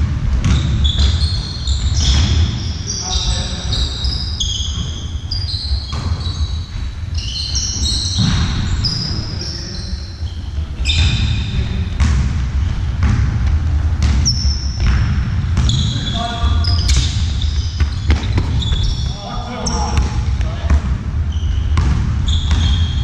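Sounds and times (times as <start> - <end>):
ball bouncing: 0.0 - 2.5, 5.8 - 6.9, 11.9 - 23.0
low rumble of large hall: 0.0 - 23.0
sports shoes squeaking on floor: 0.4 - 11.8, 14.1 - 15.0, 15.6 - 23.0.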